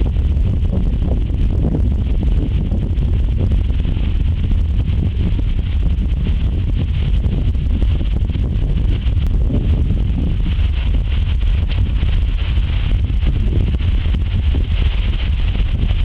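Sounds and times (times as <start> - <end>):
constant high hiss: 0.0 - 16.0
wind buffeting microphone: 0.0 - 16.0.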